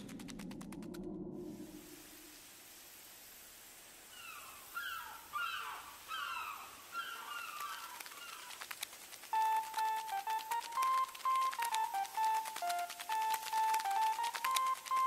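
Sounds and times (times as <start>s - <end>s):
faint outdoor hiss: 1.4s - 15.0s
bird calling: 4.1s - 15.0s.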